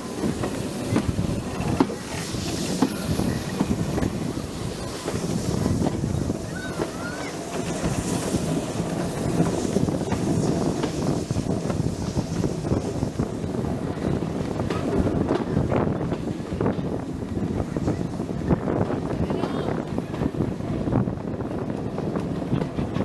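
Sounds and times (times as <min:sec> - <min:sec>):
faint train squeals: 0:00.0 - 0:15.2
train rumbling and rattling: 0:00.0 - 0:23.0
wind on microphone: 0:00.0 - 0:23.0.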